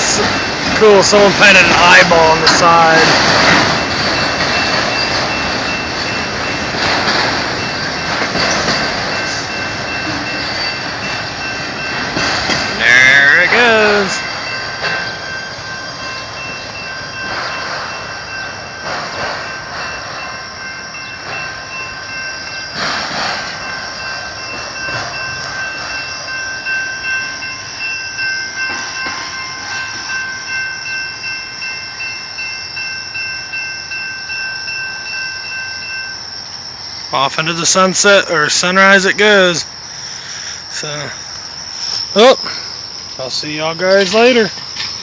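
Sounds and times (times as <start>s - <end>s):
train wheels clacking over rail joints: 0.0s - 31.3s.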